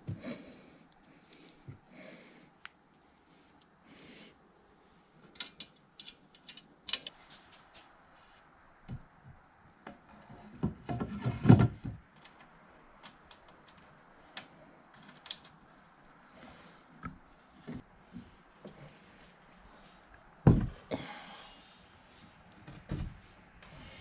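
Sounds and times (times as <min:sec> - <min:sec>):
objects knocking and clattering: 0:20.4 - 0:20.8.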